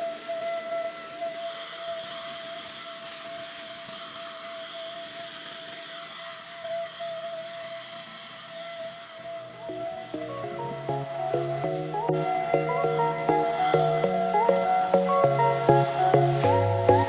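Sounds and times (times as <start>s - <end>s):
small motor running with hiss: 0.0s - 9.7s.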